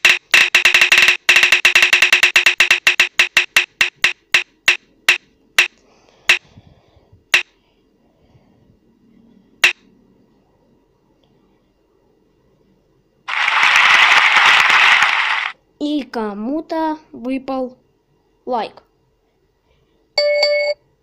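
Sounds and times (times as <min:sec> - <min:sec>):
prize wheel ticking: 0:00.0 - 0:06.4.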